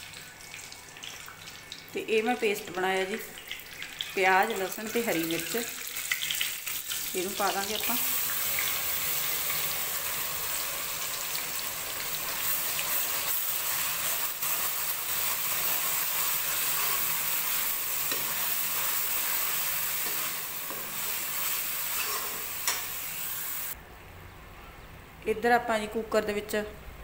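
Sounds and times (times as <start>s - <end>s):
paste sizzling in ghee: 3.1s - 23.8s.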